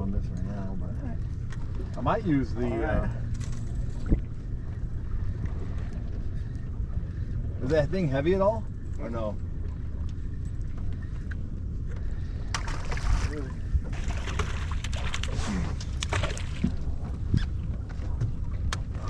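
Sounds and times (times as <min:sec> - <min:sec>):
boat engine rumble: 0:00.0 - 0:19.0
wind on microphone: 0:03.8 - 0:07.6.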